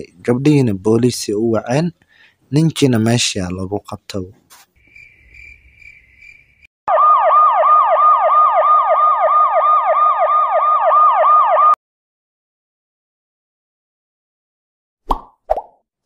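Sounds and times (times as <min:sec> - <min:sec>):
police siren yelping: 0:06.9 - 0:11.8.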